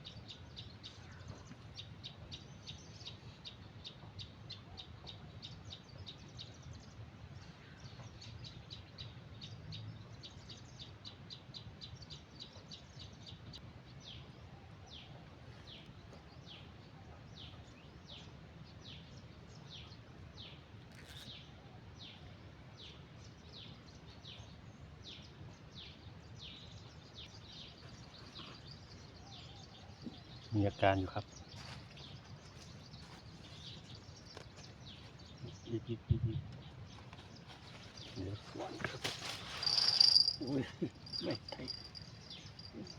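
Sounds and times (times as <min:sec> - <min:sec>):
faint outdoor background noise: 0:00.0 - 0:42.9
small bird chirping: 0:36.8 - 0:42.9.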